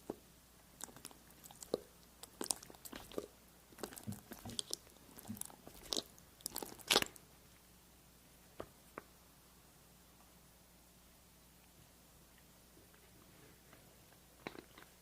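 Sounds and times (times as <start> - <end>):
crisp crackles and crunches: 0.8 - 7.2.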